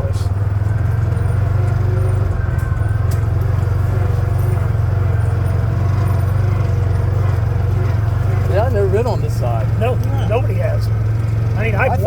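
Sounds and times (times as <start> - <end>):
atv engine droning: 0.0 - 12.0.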